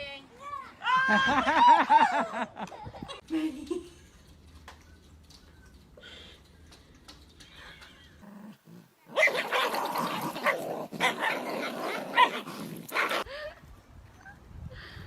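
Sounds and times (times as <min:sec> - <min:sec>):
dog growling and barking: 0:08.2 - 0:13.3.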